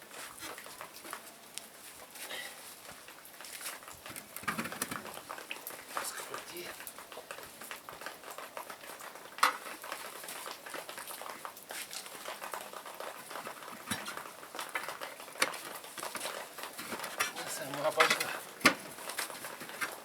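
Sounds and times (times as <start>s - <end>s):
hand tools clinking on metal: 16.2s - 20.0s.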